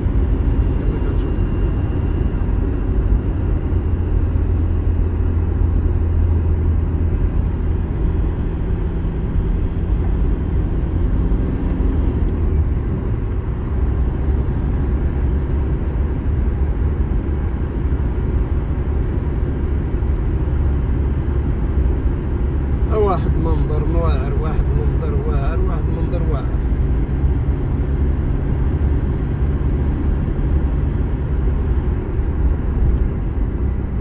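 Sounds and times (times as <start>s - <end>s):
car engine and tyres rumbling: 0.0s - 34.0s.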